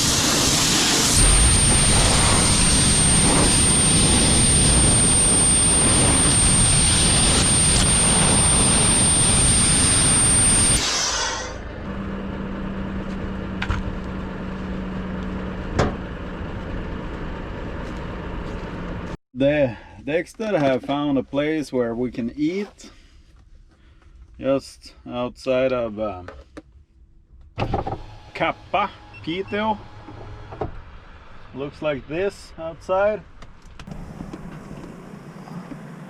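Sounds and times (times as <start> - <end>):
air blower rushing hiss: 0.0 - 11.6
thin high whine: 0.0 - 11.7
low tone: 1.1 - 10.8.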